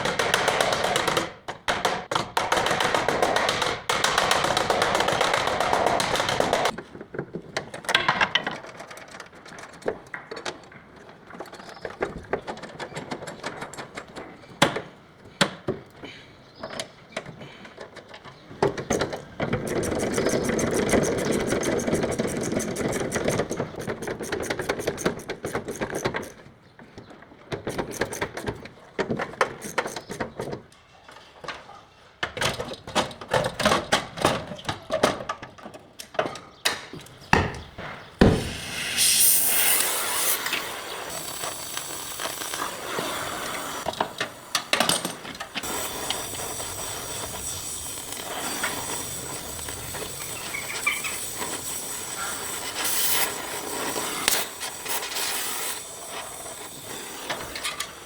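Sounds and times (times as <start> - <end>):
sharp knocks and taps on metal: 0.0 - 6.8, 36.7 - 39.4
power sander hissing: 37.2 - 58.0.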